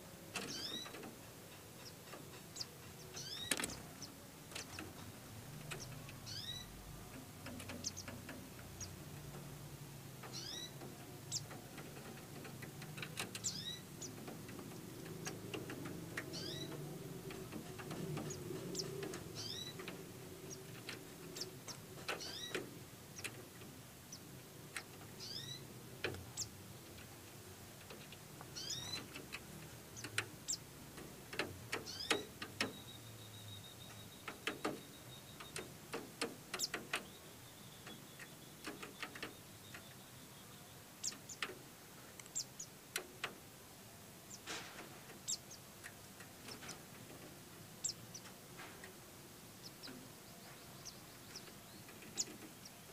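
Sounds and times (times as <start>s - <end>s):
birds chirping: 0.0s - 52.9s
light ticks and clicks: 7.0s - 23.7s, 25.9s - 32.8s, 44.8s - 49.0s.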